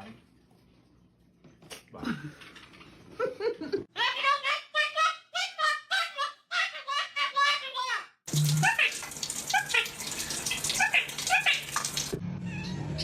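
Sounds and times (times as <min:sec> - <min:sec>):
person saying bye: 0:04.0 - 0:11.8.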